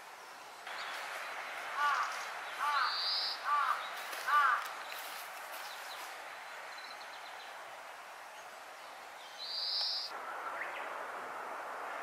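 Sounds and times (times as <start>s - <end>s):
wild birds calling: 0.7s - 7.6s, 8.4s - 10.8s.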